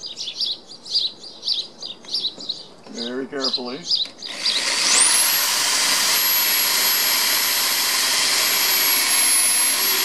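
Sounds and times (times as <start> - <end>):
electric drill whining: 4.2 - 10.0.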